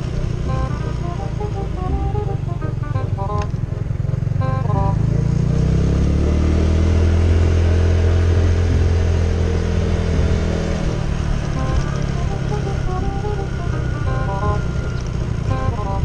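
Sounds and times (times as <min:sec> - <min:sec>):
small motorcycle engine: 0:00.0 - 0:16.0.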